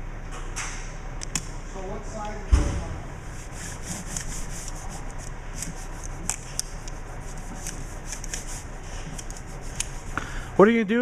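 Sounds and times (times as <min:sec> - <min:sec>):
rubbing against a hard surface: 0:03.2 - 0:10.2.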